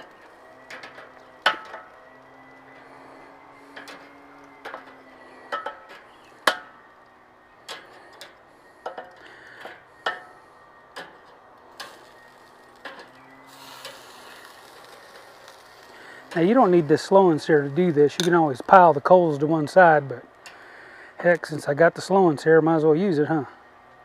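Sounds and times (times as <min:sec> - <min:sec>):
metal tongs clicking on grill grate: 0:00.0 - 0:02.0, 0:03.7 - 0:12.2, 0:12.8 - 0:15.6, 0:18.1 - 0:18.4.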